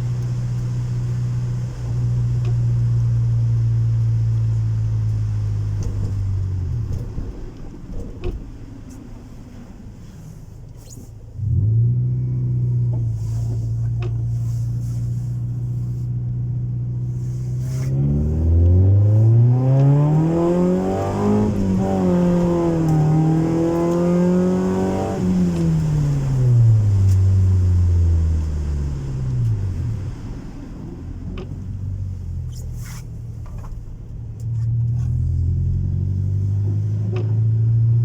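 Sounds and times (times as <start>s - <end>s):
car engine revving: 11.3s - 38.0s.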